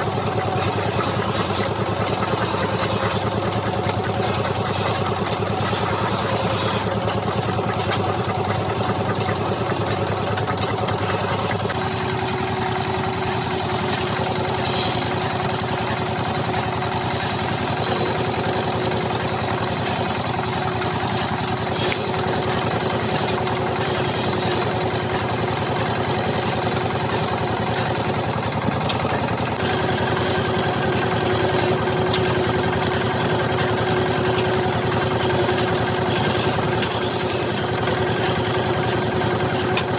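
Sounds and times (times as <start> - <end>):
wood lathe running: 0.0 - 39.9.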